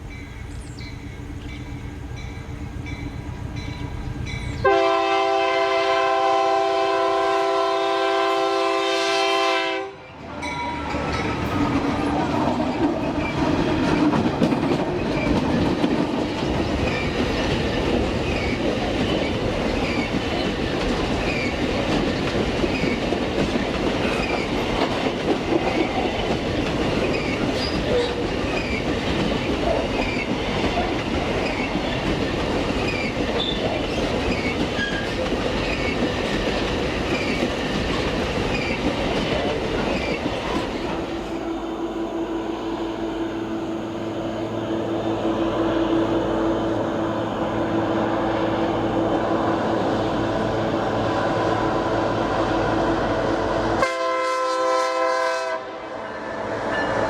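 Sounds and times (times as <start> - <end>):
train wheels rumbling on rails: 0.0 - 57.0
clickety-clack over rail joints: 10.3 - 41.2.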